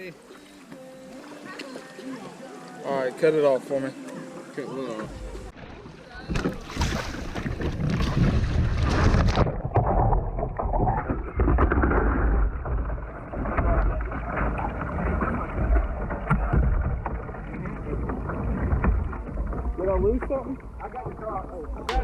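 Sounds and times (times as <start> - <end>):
small knocks and splashes: 5.6 - 22.0.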